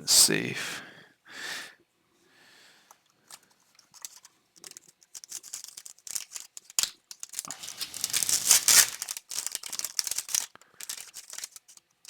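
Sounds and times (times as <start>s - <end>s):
plastic packaging crinkling: 3.2s - 12.0s.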